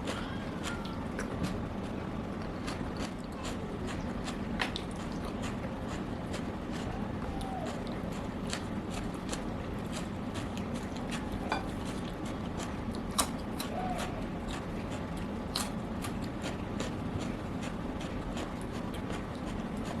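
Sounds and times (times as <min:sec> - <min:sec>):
chewing with clicks and smacks: 0:00.0 - 0:20.0
utensils clinking on plate: 0:11.5 - 0:11.8.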